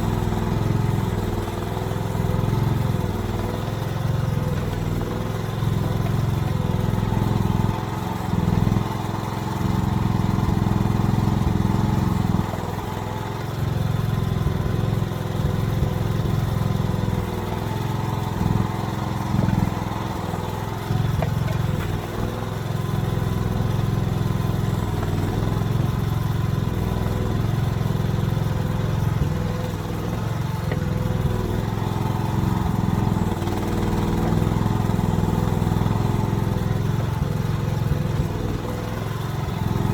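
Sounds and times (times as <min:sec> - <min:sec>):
mini excavator engine running: 0:00.0 - 0:39.9.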